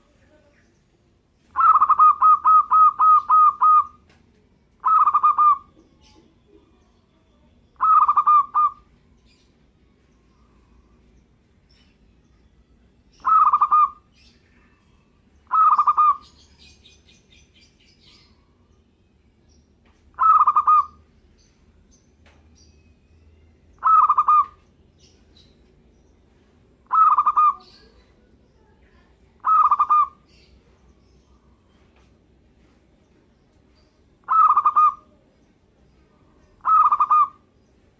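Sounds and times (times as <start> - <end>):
dove cooing: 1.5 - 4.1, 4.8 - 6.8, 7.8 - 8.9, 13.2 - 14.0, 15.4 - 16.7, 20.1 - 21.0, 23.8 - 24.6, 26.8 - 27.8, 29.4 - 30.2, 34.2 - 35.3, 36.6 - 37.4.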